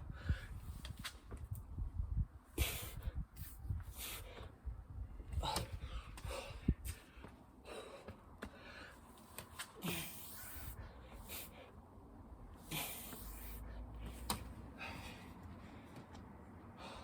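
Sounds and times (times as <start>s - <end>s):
man breathing hard and gasping: 5.3s - 9.1s, 9.8s - 11.9s, 12.6s - 16.0s, 16.7s - 17.0s.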